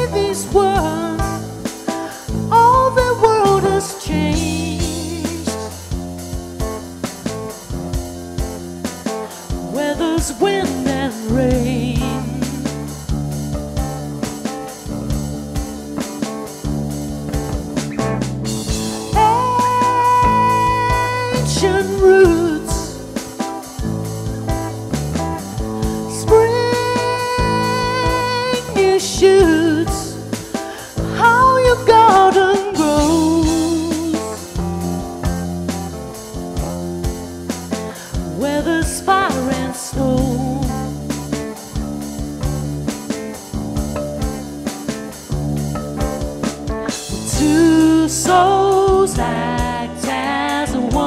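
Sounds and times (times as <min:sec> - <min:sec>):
strummed guitar: 0:00.0 - 0:49.9
steady drum beat: 0:00.0 - 0:51.0
lead melody: 0:04.0 - 0:31.3, 0:40.7 - 0:48.0
wavering melody line: 0:43.9 - 0:44.8, 0:45.5 - 0:46.6.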